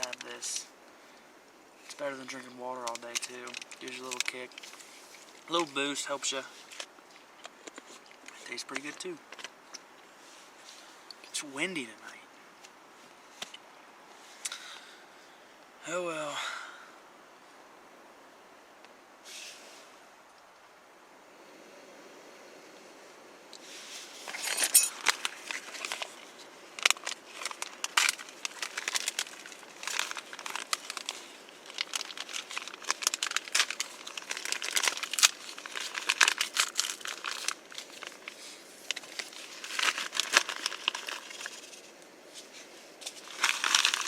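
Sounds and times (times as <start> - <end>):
crinkly material rustling: 1.8 - 9.6, 23.6 - 44.0.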